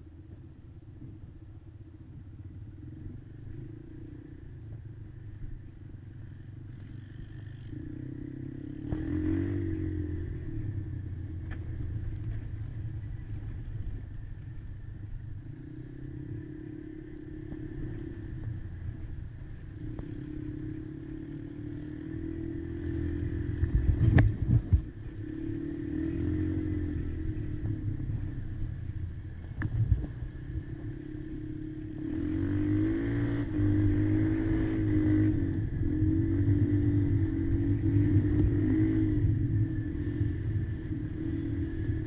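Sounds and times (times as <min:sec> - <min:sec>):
quad engine revving: 0:07.6 - 0:10.8, 0:30.8 - 0:42.0.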